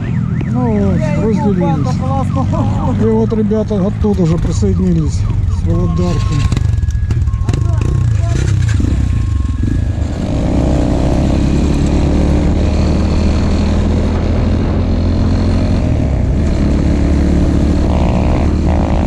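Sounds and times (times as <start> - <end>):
motorcycle engine running: 1.5 - 19.0
wind noise on microphone: 10.1 - 19.0.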